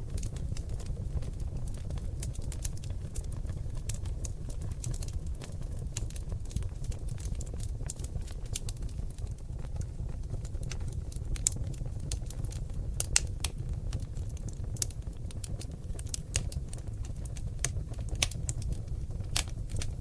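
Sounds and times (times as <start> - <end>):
logs crackling in a fireplace: 0.0 - 20.0.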